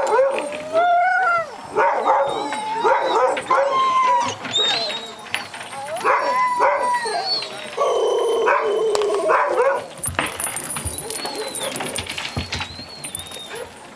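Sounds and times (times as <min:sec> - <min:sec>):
dog whining and crying: 0:00.0 - 0:09.9, 0:10.5 - 0:13.8.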